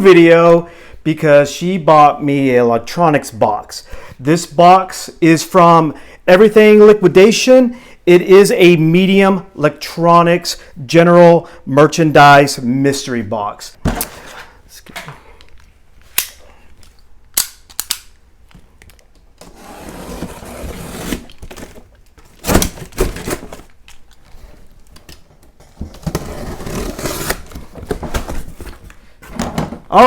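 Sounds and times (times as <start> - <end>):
cardboard rustling and scraping: 19.4 - 29.9.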